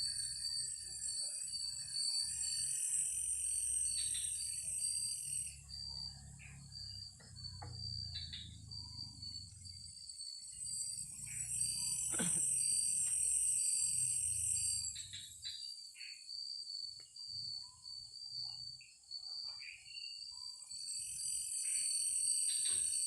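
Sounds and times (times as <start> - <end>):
crickets chirping: 0.0 - 23.0
high insect drone: 0.0 - 23.0.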